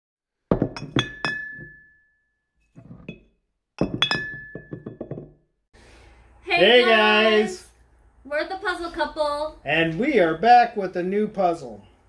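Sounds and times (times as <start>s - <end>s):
objects clinking on glass: 0.5s - 2.0s, 2.8s - 5.3s.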